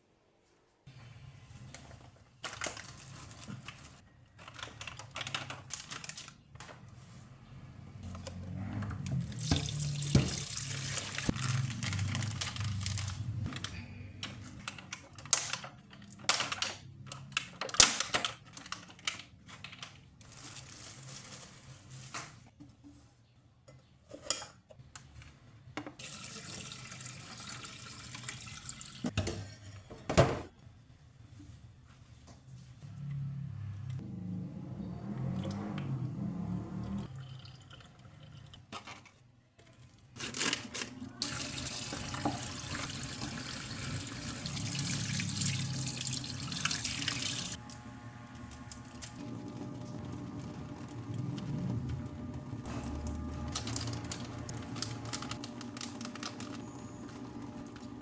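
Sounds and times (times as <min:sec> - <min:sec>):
tap water running into sink: 0:09.2 - 0:11.3, 0:26.0 - 0:29.2, 0:41.2 - 0:47.6.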